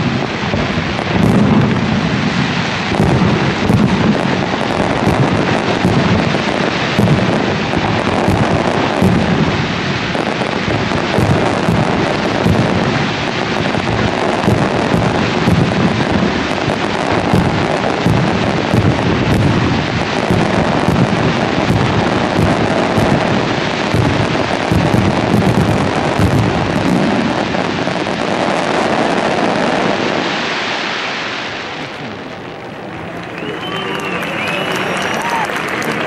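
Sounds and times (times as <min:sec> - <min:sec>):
fireworks shell bursts: 0:00.0 - 0:27.3.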